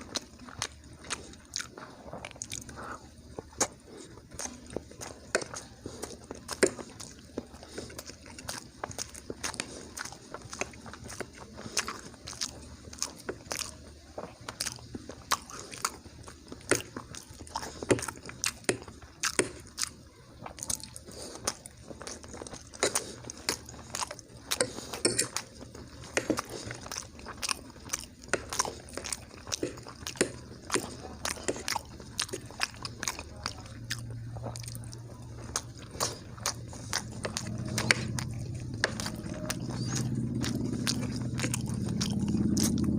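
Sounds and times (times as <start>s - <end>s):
person chewing food: 0.0s - 42.9s.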